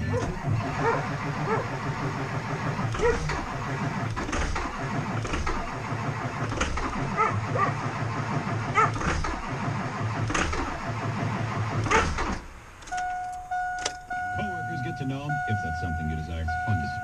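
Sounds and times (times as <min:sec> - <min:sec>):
starter motor cranking engine: 0:00.0 - 0:13.1.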